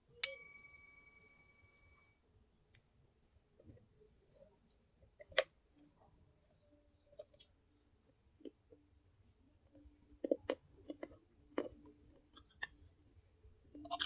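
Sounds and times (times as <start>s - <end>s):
ringing note: 0.2s - 2.0s.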